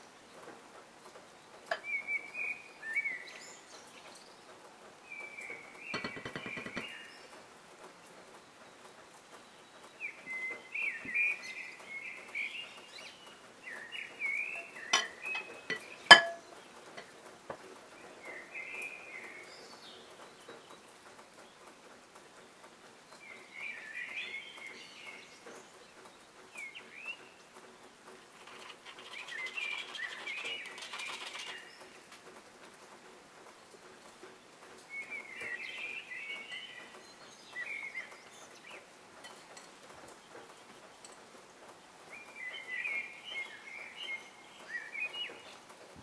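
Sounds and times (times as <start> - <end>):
birds chirping: 0.0 - 27.6, 28.2 - 32.1, 33.6 - 46.0
sharp clinks: 15.0 - 16.4.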